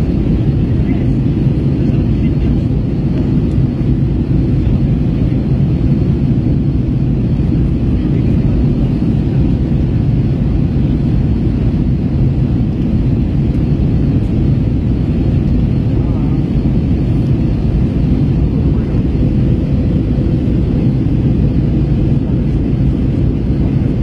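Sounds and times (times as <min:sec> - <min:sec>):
airplane cabin engine rumble: 0:00.0 - 0:24.0.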